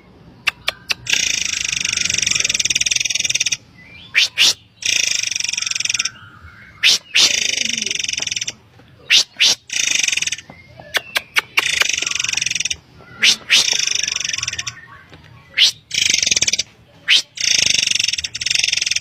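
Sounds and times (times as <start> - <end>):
bird buzzy trills: 0.5 - 19.0
bird sharp rising whistles: 13.1 - 14.8, 15.6 - 15.8.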